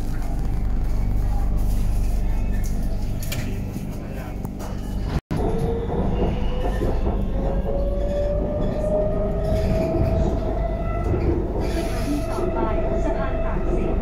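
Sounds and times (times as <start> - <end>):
train wheels rumbling on track: 4.6 - 14.0.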